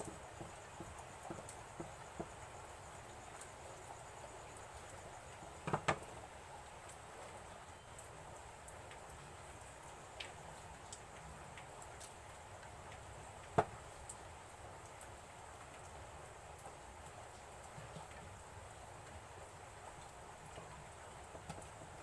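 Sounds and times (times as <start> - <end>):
faint clicks and taps: 0.0 - 3.5, 4.5 - 6.2, 16.6 - 18.4, 20.0 - 22.0
steady low hiss: 0.0 - 22.0.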